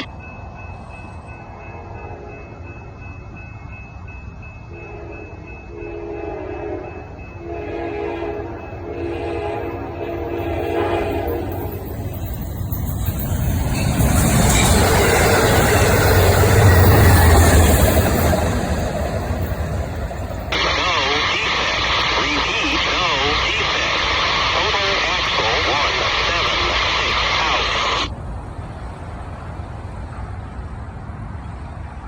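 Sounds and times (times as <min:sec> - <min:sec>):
train rumbling past: 0:00.0 - 0:32.0
train horn blasts: 0:04.7 - 0:11.8.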